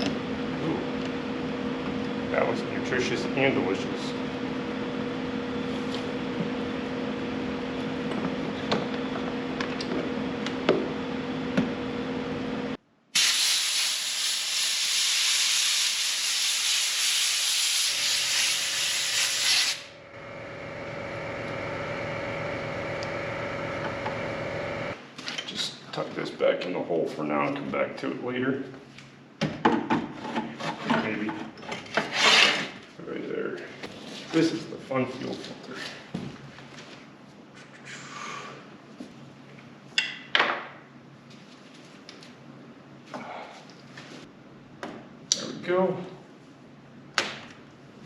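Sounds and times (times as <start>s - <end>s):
compressed air hissing from nozzle: 13.2s - 19.9s
low two-tone hum: 19.8s - 25.0s.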